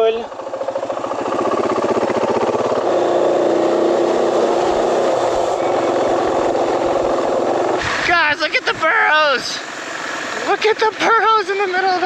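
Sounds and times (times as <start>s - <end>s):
motorcycle engine running: 0.0s - 12.0s
wind rush: 0.8s - 9.6s.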